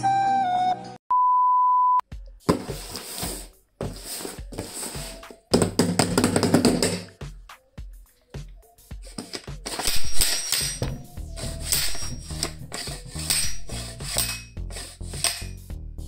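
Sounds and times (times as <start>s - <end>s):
music: 0.0s - 1.0s, 2.0s - 16.0s
single-pitch beep: 0.0s - 2.0s.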